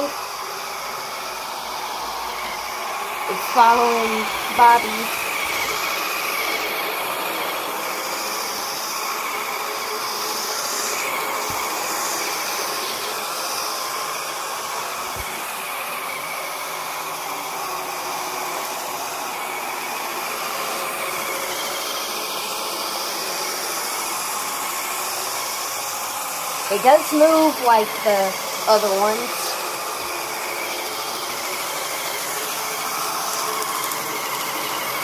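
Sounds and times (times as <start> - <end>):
robot vacuum whirring: 0.0 - 35.0.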